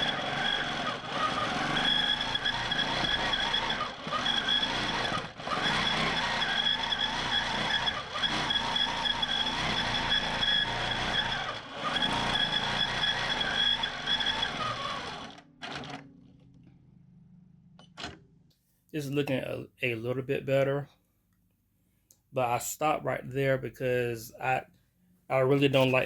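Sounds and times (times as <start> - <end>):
quilting machine whining: 0.0 - 16.5.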